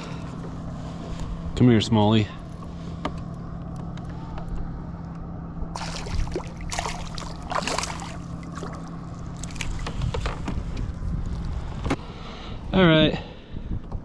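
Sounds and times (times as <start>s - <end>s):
water splashing and sloshing: 5.7s - 11.1s.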